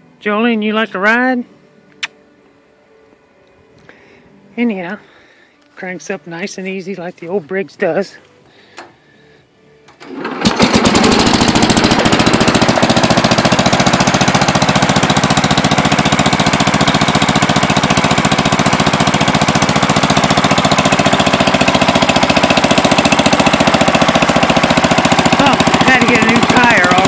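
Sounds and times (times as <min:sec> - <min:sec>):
tractor engine starting and running: 0:09.8 - 0:27.0.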